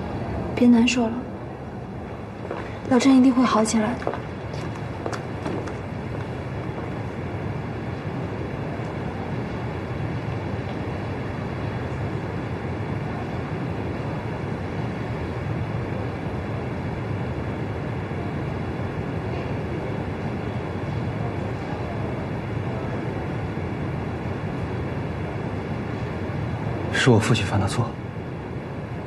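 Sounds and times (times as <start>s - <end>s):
steady low rumbling: 0.0s - 27.0s.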